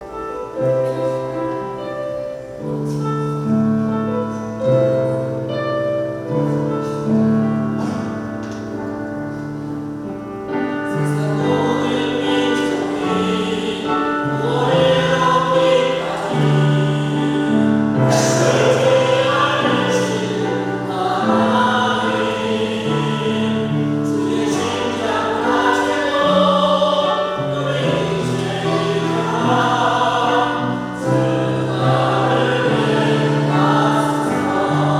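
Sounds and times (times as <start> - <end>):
piano accompaniment: 0.0 - 34.9
group singing gospel hymn: 10.8 - 34.9.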